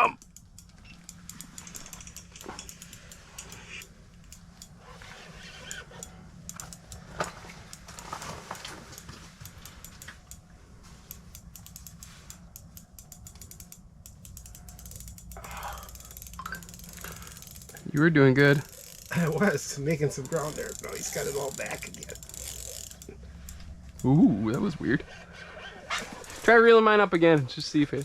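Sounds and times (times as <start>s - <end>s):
fishing reel clicking and ratcheting: 0.0s - 25.1s, 26.0s - 26.7s.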